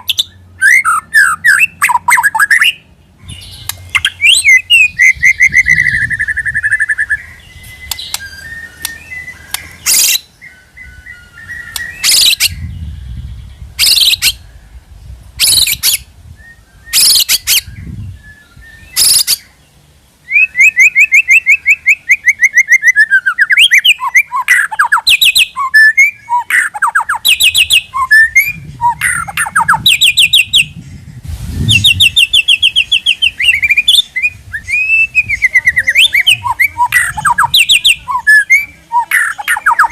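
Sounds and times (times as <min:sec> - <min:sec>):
bird singing trilled phrases: 0:00.0 - 0:39.9
short harsh bird calls: 0:05.7 - 0:12.7, 0:16.9 - 0:17.7, 0:18.9 - 0:19.6.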